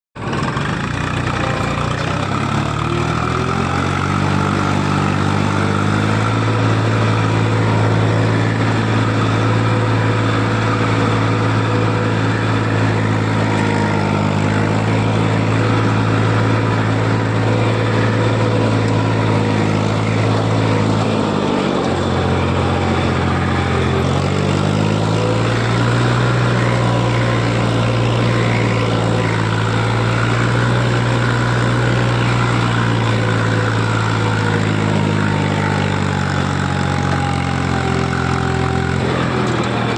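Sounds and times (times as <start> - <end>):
tractor engine running: 0.2 - 39.9.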